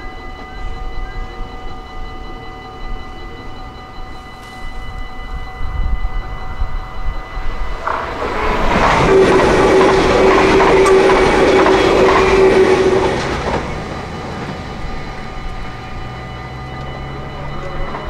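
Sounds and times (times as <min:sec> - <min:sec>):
steady train whine: 0:00.0 - 0:18.0
train wheels rumbling on rails: 0:04.3 - 0:18.0.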